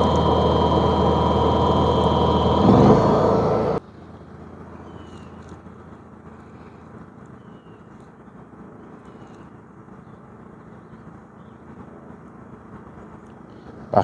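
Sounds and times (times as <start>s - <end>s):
generator running: 0.0s - 3.8s.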